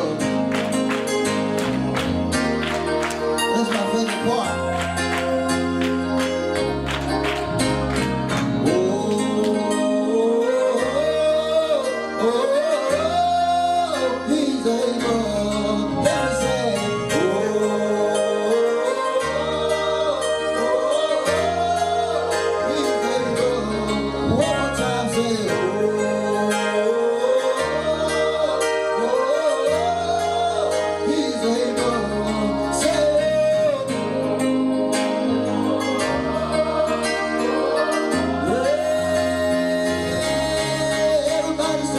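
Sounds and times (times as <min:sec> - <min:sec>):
bass line: 0:00.0 - 0:41.9
instrumental accompaniment: 0:00.0 - 0:41.9
person singing gospel song: 0:00.0 - 0:41.9.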